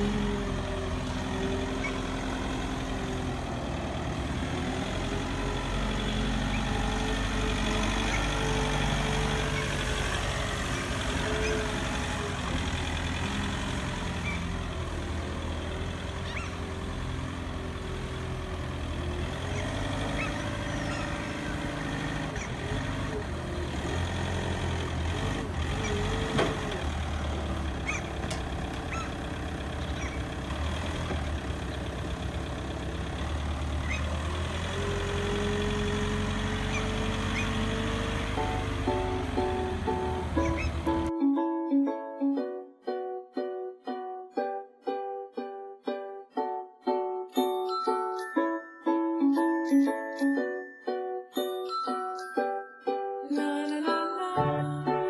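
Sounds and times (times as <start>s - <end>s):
truck engine running: 0.0s - 41.1s.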